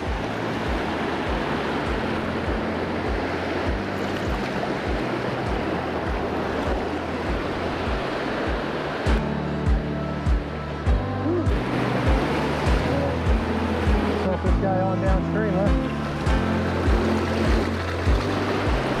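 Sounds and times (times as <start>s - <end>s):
thumping background music: 0.0s - 19.0s.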